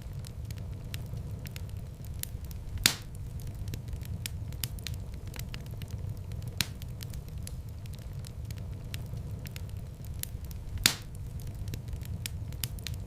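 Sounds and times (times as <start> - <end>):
low rumble of flames: 0.0 - 13.0
wood fire crackling: 0.0 - 13.0
loud fire pop: 2.8 - 3.2, 10.8 - 11.2.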